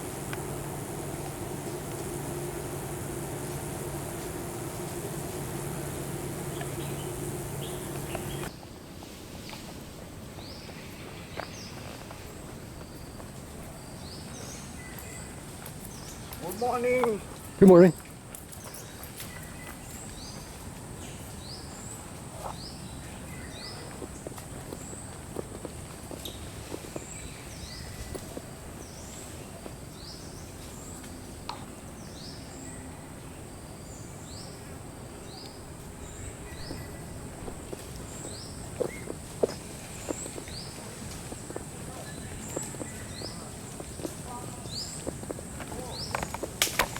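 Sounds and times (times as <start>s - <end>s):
faint high whine: 0.0s - 8.5s
high gliding chirps: 0.0s - 8.5s
high-pitched insect drone: 0.0s - 8.5s
steady hiss: 0.0s - 9.9s, 34.0s - 46.9s.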